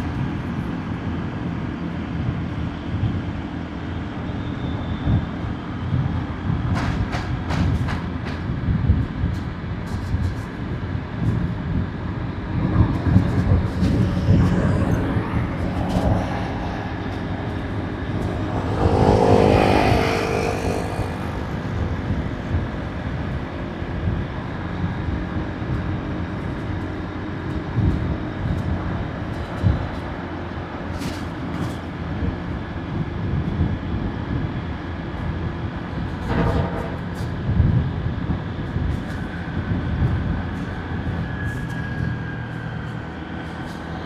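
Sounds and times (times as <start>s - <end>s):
road and wind noise: 0.0s - 44.0s
passing traffic: 9.9s - 32.0s.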